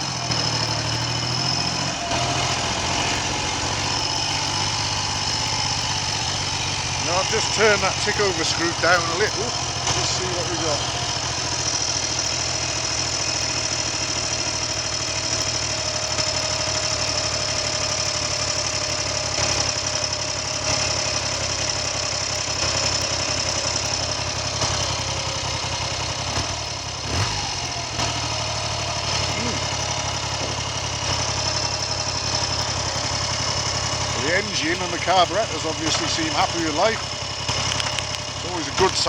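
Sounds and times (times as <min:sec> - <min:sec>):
motorcycle engine idling: 0:00.0 - 0:39.0.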